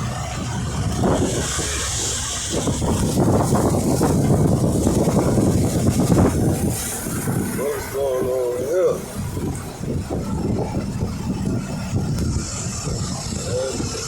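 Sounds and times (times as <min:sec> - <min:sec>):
truck engine rumbling: 0:00.0 - 0:14.0
hiss: 0:00.9 - 0:08.8.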